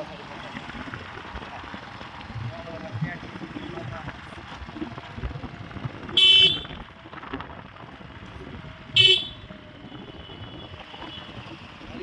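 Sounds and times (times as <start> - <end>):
road noise: 0.0 - 12.0
wind noise: 4.8 - 11.8
vehicle horn beeps: 6.2 - 6.8, 9.0 - 11.4.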